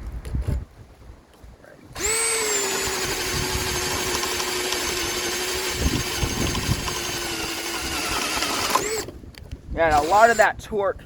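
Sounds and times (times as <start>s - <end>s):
cordless drill motor whine: 2.0s - 9.2s, 9.9s - 10.5s
drill bit knocking in wood: 2.0s - 9.2s, 9.9s - 10.4s.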